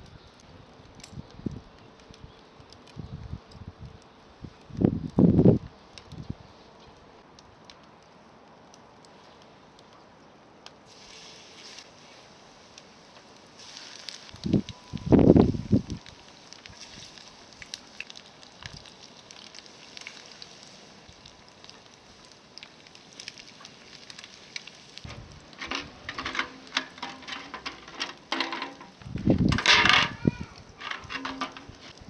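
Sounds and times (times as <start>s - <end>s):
campfire crackling: 0.0s - 32.0s
oil sizzling: 10.8s - 32.0s
clicks and clatter: 25.0s - 30.2s, 30.8s - 32.0s.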